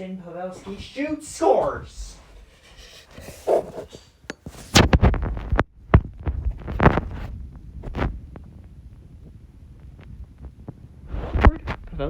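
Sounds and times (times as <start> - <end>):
heavy dull thumps and knocks: 3.2 - 12.0.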